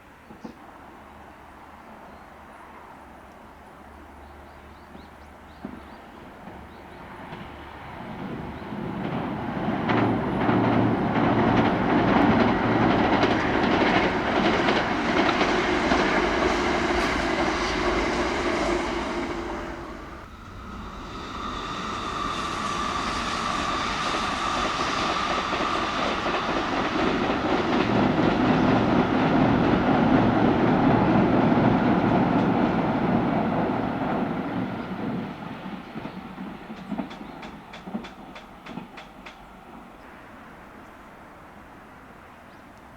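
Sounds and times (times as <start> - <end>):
wheels clacking over rail joints: 5.7 - 20.1
electric train passing: 6.4 - 42.9
steady whine: 15.2 - 28.0.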